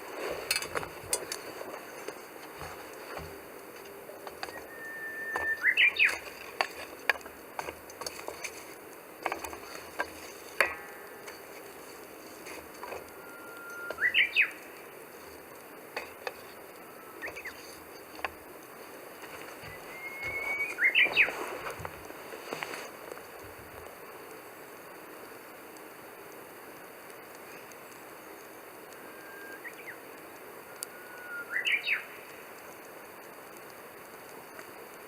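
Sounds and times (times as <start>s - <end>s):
campfire crackling and popping: 0.0s - 35.0s
bird whistling call: 4.4s - 6.3s, 13.1s - 14.6s, 17.0s - 17.7s, 19.6s - 21.4s, 29.0s - 30.0s, 30.6s - 32.2s.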